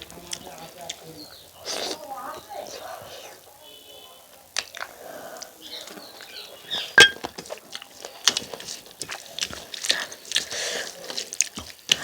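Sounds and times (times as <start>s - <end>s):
wet chewing and lip-smacking: 4.5s - 5.5s, 7.4s - 12.0s.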